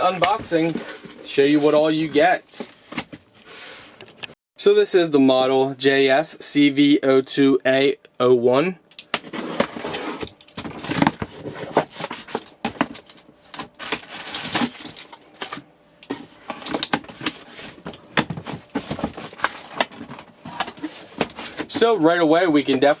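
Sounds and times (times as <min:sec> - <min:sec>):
cardboard packaging rustling: 0:09.2 - 0:23.0.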